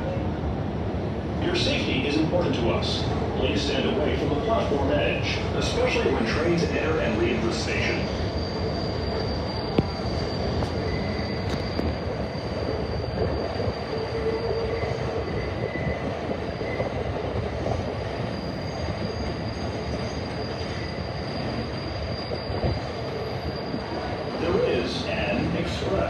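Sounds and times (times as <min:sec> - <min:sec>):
subway train rumbling on track: 0:00.0 - 0:26.0
high-pitched wheel squeal: 0:07.8 - 0:17.0, 0:18.2 - 0:24.5.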